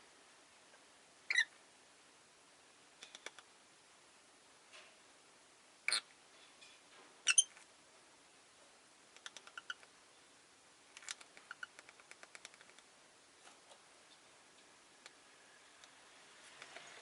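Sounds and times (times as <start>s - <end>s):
lovebird chirp: 1.2s - 1.5s, 5.9s - 6.1s, 7.2s - 7.5s, 9.3s - 10.4s
bird clicking chatter: 9.2s - 9.9s, 11.0s - 12.8s.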